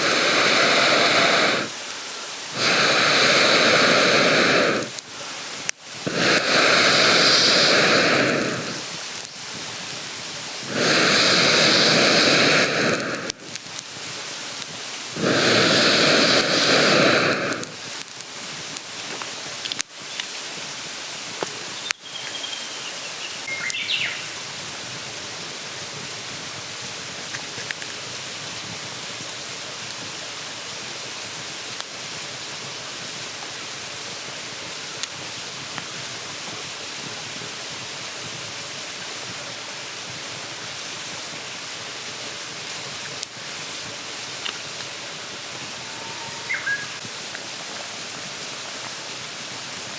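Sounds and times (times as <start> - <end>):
mountain stream rushing: 0.0 - 49.9
bird chirping: 21.8 - 24.4, 45.9 - 47.0.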